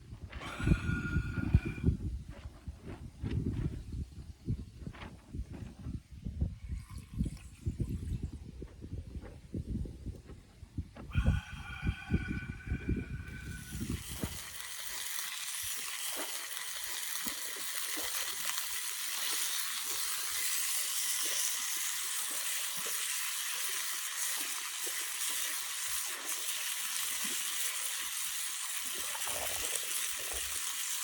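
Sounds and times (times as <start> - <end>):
food sizzling in frying pan: 13.4 - 31.0.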